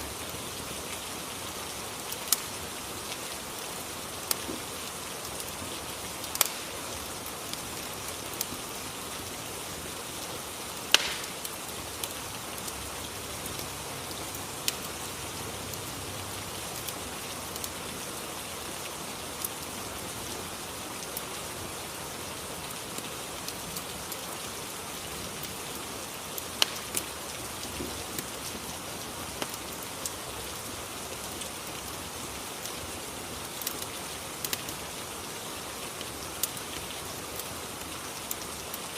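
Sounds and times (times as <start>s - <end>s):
steady rain: 0.0s - 38.9s
fireplace crackling pops: 2.1s - 2.5s, 4.2s - 4.6s, 5.3s - 8.7s, 10.8s - 12.8s, 14.6s - 15.0s, 26.6s - 28.3s.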